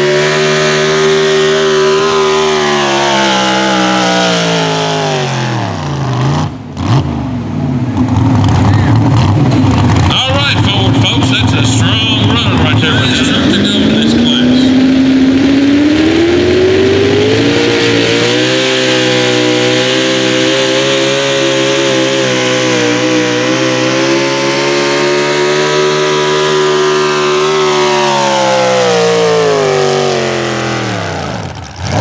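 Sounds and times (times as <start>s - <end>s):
tractor engine under load: 7.6s - 14.6s, 24.1s - 32.0s.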